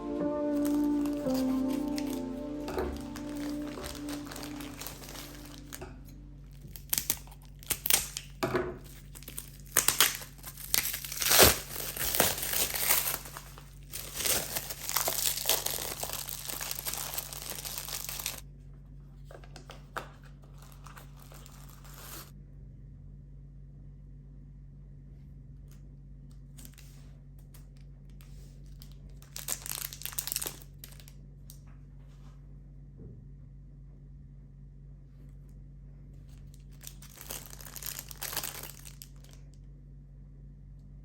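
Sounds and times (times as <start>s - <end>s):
steady low hum: 0.0s - 8.0s
crinkling and rustling: 0.0s - 22.3s, 26.4s - 32.4s, 36.2s - 39.6s.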